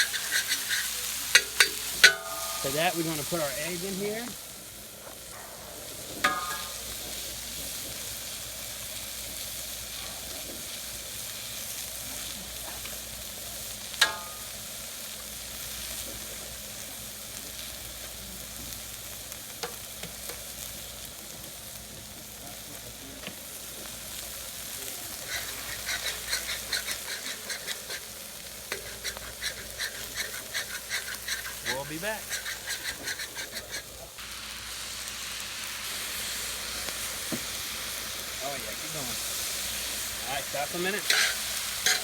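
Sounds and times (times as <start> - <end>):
clicking stirring strokes: 0.0 - 3.4, 25.0 - 34.2, 40.8 - 42.0
food sizzling in wok: 0.0 - 42.0
ringing metal clink: 1.4 - 2.8.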